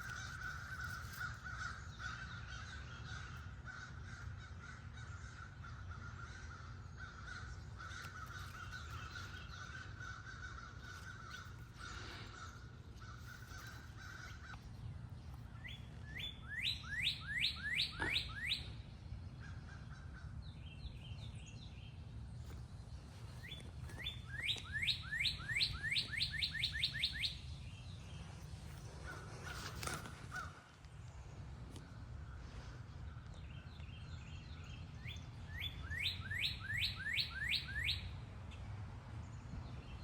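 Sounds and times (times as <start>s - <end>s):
crows cawing: 0.0s - 14.8s, 28.9s - 30.8s
songbird whistled notes: 15.6s - 18.7s, 23.4s - 27.4s, 35.0s - 38.1s.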